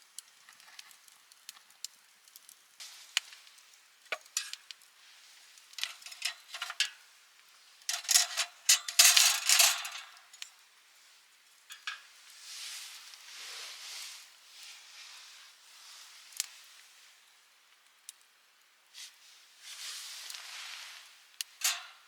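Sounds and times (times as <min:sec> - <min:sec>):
soft hiss: 0:00.0 - 0:22.0
objects clicking and clinking: 0:05.8 - 0:06.9, 0:21.6 - 0:22.0
scraping and rattling: 0:05.8 - 0:06.9, 0:07.9 - 0:10.2, 0:21.6 - 0:22.0.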